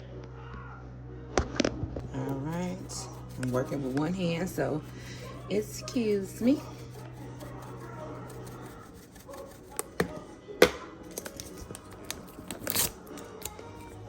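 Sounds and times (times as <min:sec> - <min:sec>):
faint television: 0:00.0 - 0:14.0
tearing rustle: 0:11.2 - 0:13.6.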